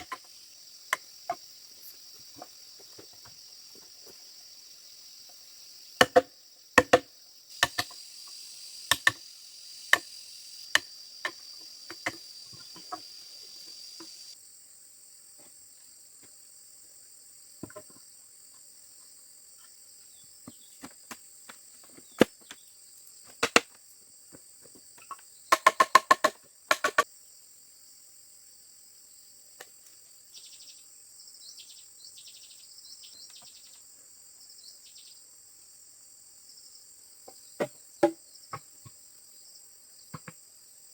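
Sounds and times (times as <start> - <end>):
insects chirring: 0.0 - 40.9
hand tool striking bamboo: 6.0 - 8.0, 8.9 - 9.2, 23.4 - 23.8, 25.5 - 27.0.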